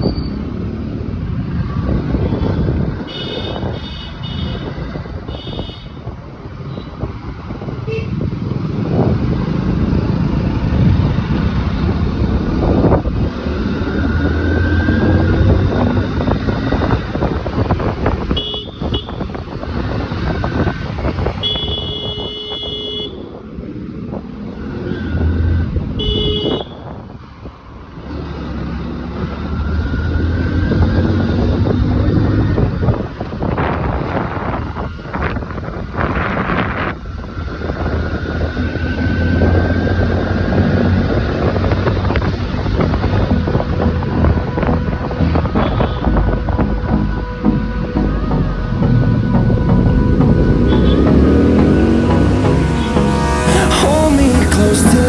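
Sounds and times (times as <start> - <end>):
motorcycle engines revving: 0.0 - 55.0
horns honking: 18.3 - 19.4, 21.4 - 23.3, 26.0 - 26.8, 45.4 - 46.3, 49.3 - 55.0.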